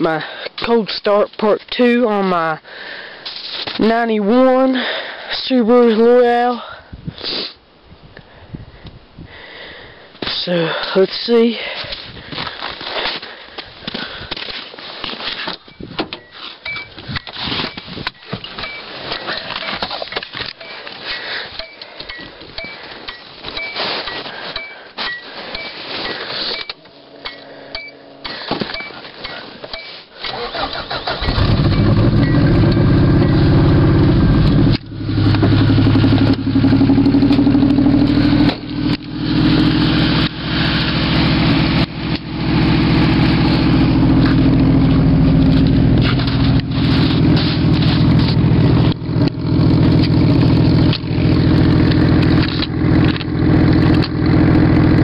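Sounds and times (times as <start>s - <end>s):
car engine cranking and running: 30.2s - 55.0s
rustling and clicks: 44.3s - 49.4s.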